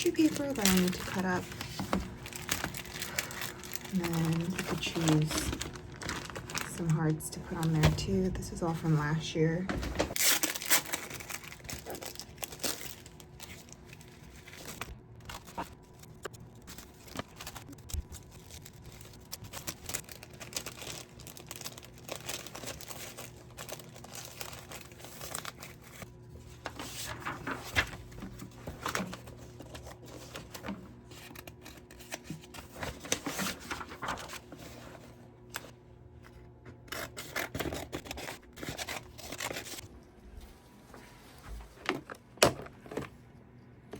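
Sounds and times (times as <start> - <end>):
tissue paper rustling: 0.0 - 7.8, 10.1 - 31.3, 31.9 - 35.2.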